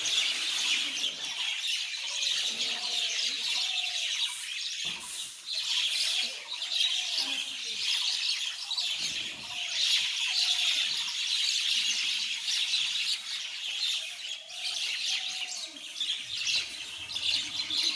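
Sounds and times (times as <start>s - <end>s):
flock of mynas chattering: 0.0s - 17.9s.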